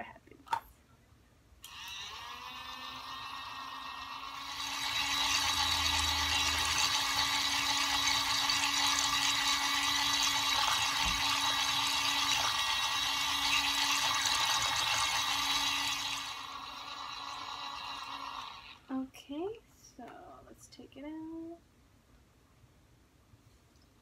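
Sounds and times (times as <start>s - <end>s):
small motor humming: 1.7s - 18.9s.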